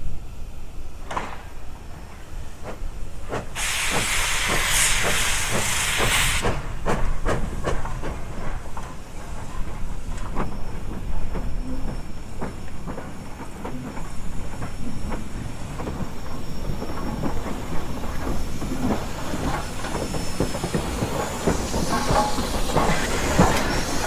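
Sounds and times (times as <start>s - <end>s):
steam locomotive chuffing: 1.0s - 24.0s
loud hiss of steam: 1.9s - 10.1s, 14.1s - 24.0s.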